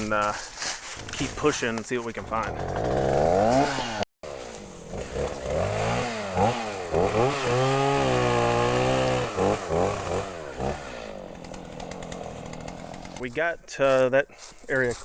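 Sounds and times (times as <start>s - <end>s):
chainsaw cutting wood: 2.2s - 13.2s.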